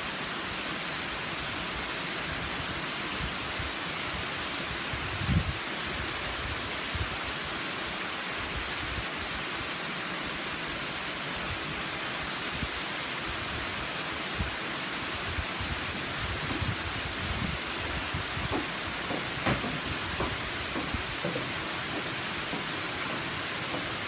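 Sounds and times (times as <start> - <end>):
waterfall roaring: 0.0 - 24.0
low thumps: 16.0 - 24.0.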